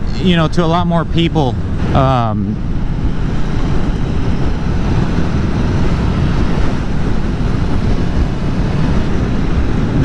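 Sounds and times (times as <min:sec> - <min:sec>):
motorcycle engine cruising: 0:00.0 - 0:10.0
wind and road noise: 0:00.0 - 0:10.0.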